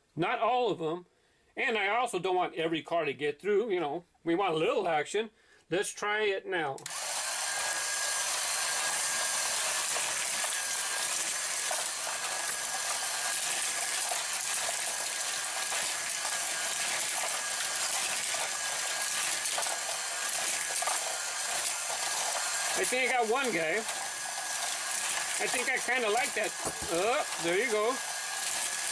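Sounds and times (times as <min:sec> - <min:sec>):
toy track motor running: 0:06.8 - 0:28.9.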